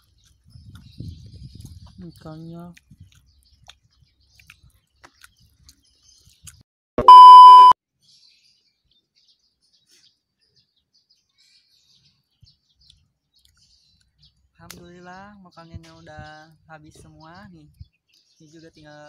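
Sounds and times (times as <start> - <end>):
faint high chirps: 7.0 - 7.8
loud electronic beep: 7.0 - 7.8.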